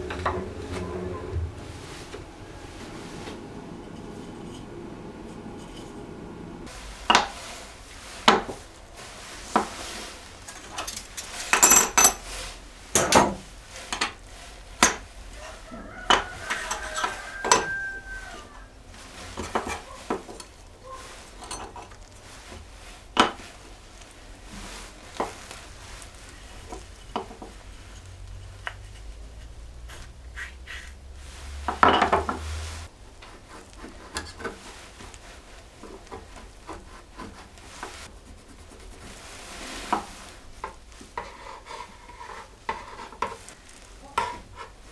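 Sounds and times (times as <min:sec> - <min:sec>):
scraping rush: 0:00.0 - 0:11.6.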